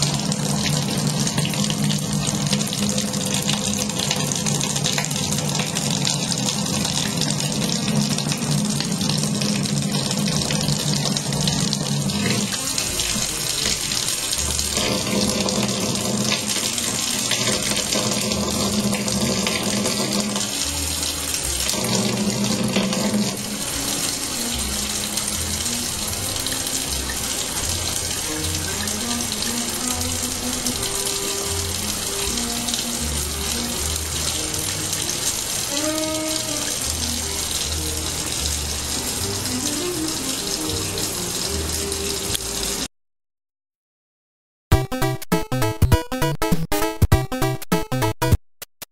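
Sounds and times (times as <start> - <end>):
faucet running into metal sink: 0.0 - 42.9
background music: 11.2 - 42.8, 44.7 - 48.4.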